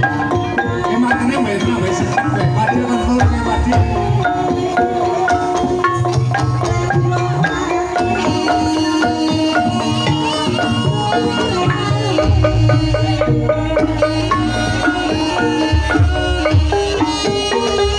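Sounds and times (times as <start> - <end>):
hand drum strokes: 0.0 - 17.9
tuned struck keys ensemble: 12.2 - 17.1.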